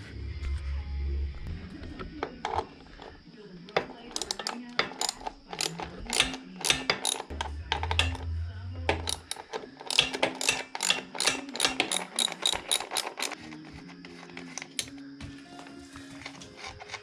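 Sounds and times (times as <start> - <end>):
ratchet wrench clicking: 3.8 - 8.3, 8.9 - 13.8.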